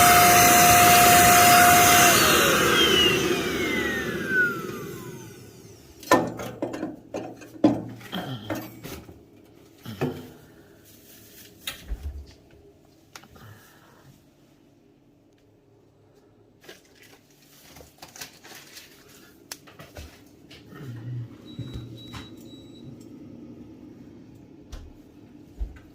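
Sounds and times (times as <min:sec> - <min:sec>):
vacuum cleaner motor winding down: 0:00.0 - 0:06.1.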